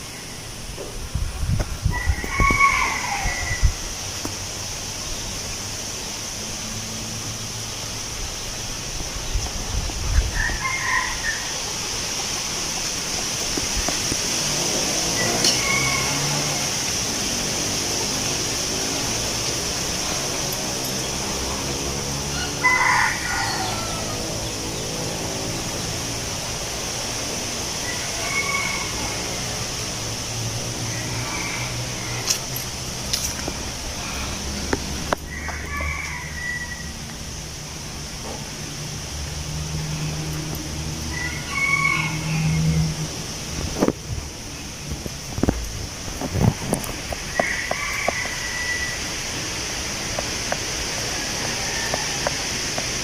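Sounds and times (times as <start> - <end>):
wind rustling tree leaves: 0.0 - 53.0
wind gusts buffeting microphone: 0.6 - 4.5, 8.2 - 15.1, 43.4 - 48.2
rooster crowing: 1.9 - 4.0, 10.2 - 11.9, 14.5 - 26.0, 27.7 - 32.6, 33.2 - 37.2, 39.7 - 43.1, 46.8 - 50.0, 50.8 - 52.8.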